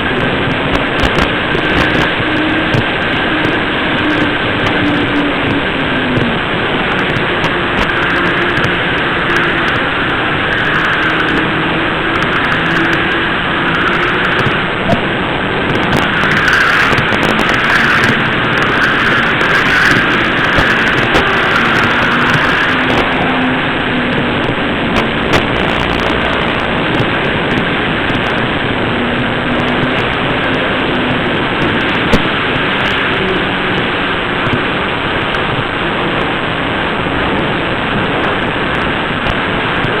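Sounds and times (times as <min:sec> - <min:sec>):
motor whine: 0:00.0 - 0:34.8
sharp track clicks: 0:00.0 - 0:35.7
model train rolling: 0:01.3 - 0:14.9, 0:15.9 - 0:24.1.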